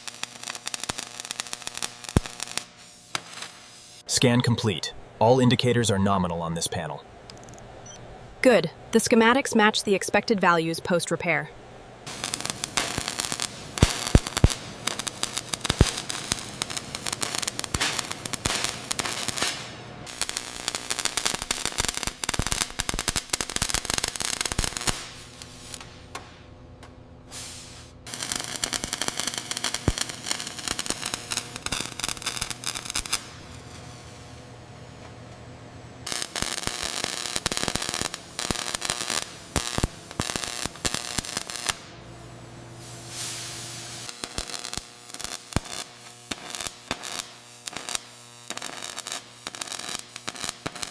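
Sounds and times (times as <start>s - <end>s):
low steady hum: 4.1s - 17.2s
dense irregular crackling: 12.1s - 26.0s, 28.1s - 33.7s.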